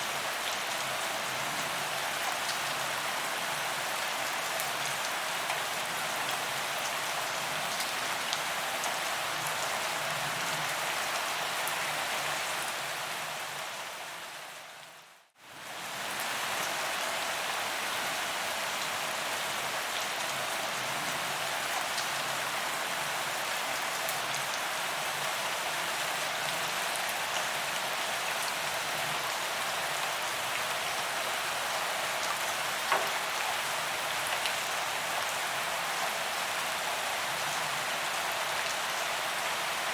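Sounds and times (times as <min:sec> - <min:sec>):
rain hissing on pavement: 0:15.5 - 0:39.9.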